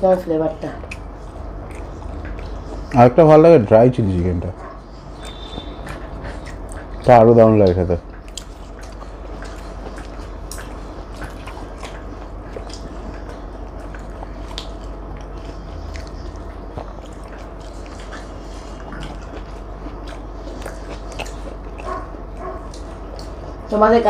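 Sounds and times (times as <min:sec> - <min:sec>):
people biting and chewing: 0:00.7 - 0:23.7
wet mouth clicks: 0:00.8 - 0:03.0, 0:08.2 - 0:12.0.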